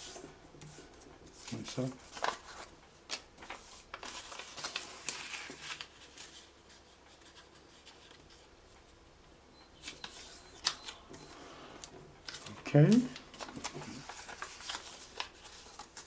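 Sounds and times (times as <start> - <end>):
paper rustling and crinkling: 0.0 - 8.5, 11.8 - 16.0.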